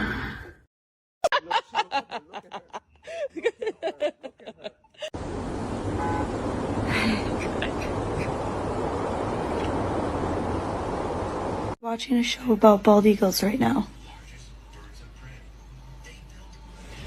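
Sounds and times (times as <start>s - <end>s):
person laughing: 1.2s - 5.1s, 6.9s - 8.4s
steady rushing noise: 5.2s - 11.8s.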